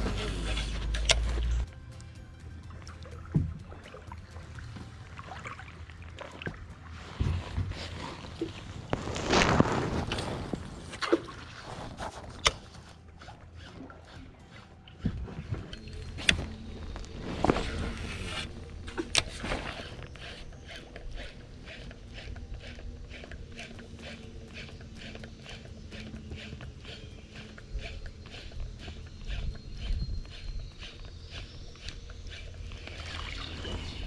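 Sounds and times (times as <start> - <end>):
water sounds: 0.0 - 34.0
rapid even ticking: 17.8 - 33.9.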